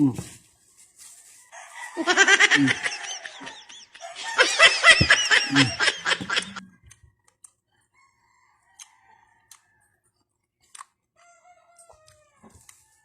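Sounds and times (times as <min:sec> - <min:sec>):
chickens cackling: 0:01.6 - 0:06.6.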